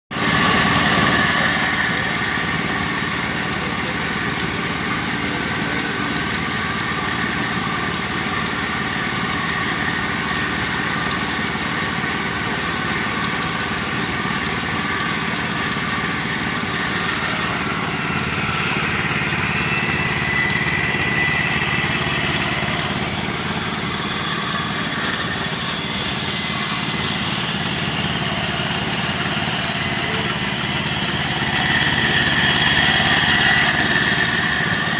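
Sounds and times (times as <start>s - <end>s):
small engine running sawmill: 0.1s - 34.9s.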